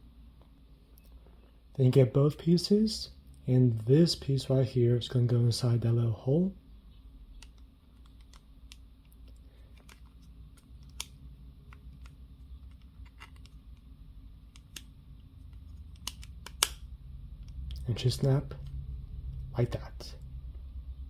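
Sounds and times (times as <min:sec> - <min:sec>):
plastic piece snapping into place: 0:15.9 - 0:16.8.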